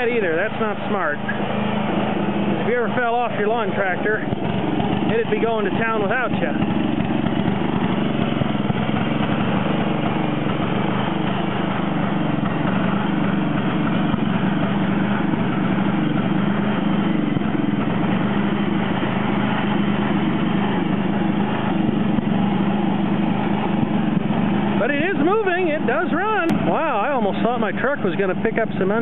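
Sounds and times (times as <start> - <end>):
lawn tractor engine running: 0.0 - 29.0.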